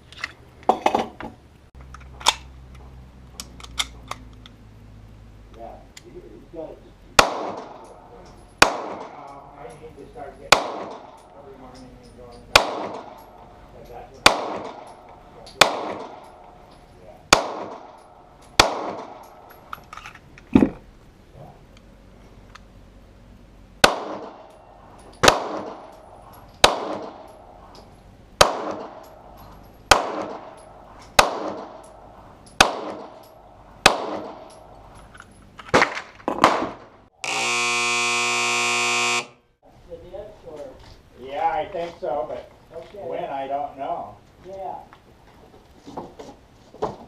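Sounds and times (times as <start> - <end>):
pistol shots with echo: 7.2 - 7.9, 8.6 - 9.2, 10.5 - 11.3, 12.5 - 13.4, 14.2 - 16.5, 17.3 - 19.5, 23.8 - 24.5, 25.2 - 26.0, 26.6 - 27.4, 28.4 - 29.2, 29.9 - 31.9, 32.6 - 34.6
steady buzzer: 37.2 - 39.5.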